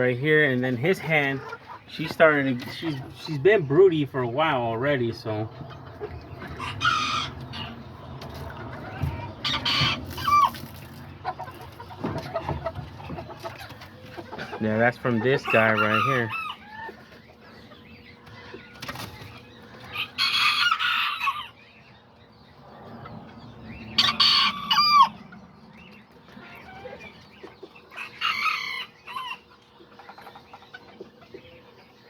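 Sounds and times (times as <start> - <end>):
hens clucking softly: 0.0 - 32.0
roosters crowing: 6.1 - 11.2, 13.9 - 17.1, 19.6 - 21.8, 23.0 - 25.7, 26.4 - 29.6.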